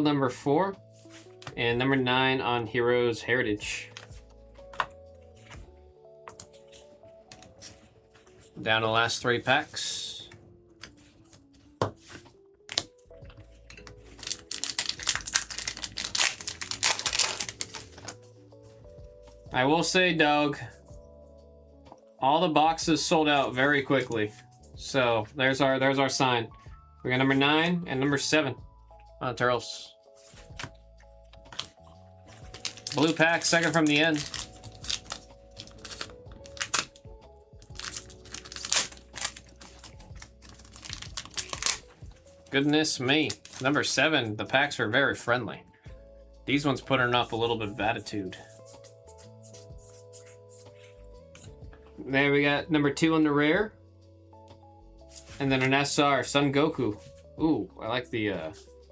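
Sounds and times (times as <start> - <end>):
faint background music: 0.0 - 58.9
foil wrapper tearing and crinkling: 13.7 - 18.2, 31.5 - 43.8.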